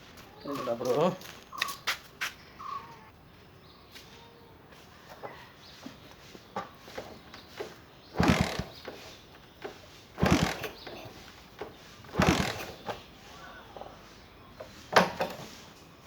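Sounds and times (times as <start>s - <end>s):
motorcycle being kick-started: 6.6s - 14.0s, 14.6s - 15.6s
engine turning over briefly: 6.9s - 13.1s.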